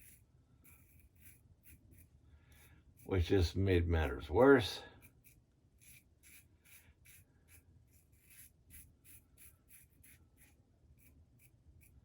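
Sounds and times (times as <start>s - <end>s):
razor scraping stubble: 0.0s - 3.4s, 5.0s - 12.0s.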